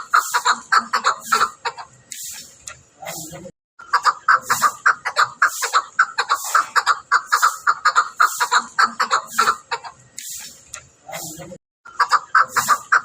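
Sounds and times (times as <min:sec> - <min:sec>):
partridge chuck calls: 0:00.0 - 0:13.0.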